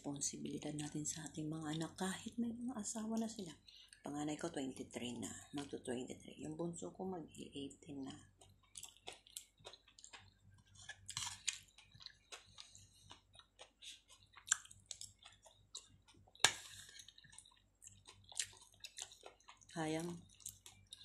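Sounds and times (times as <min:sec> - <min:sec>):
chewing with wet mouth smacks: 0:08.1 - 0:21.0.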